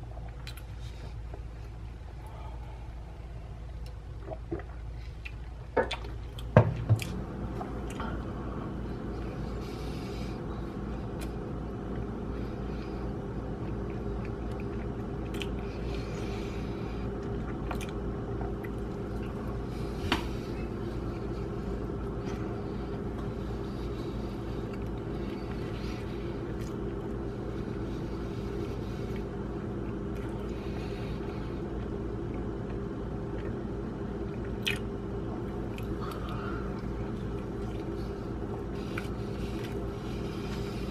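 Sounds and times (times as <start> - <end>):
steady low hum: 0.0 - 40.9
chewing bread sandwich: 3.7 - 8.2, 11.1 - 40.9
wet mouth sounds: 3.8 - 7.2, 34.4 - 35.0.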